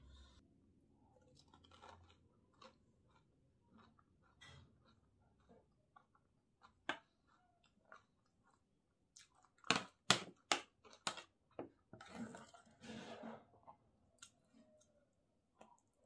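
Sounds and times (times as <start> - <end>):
crunchy chewing: 1.2 - 10.0.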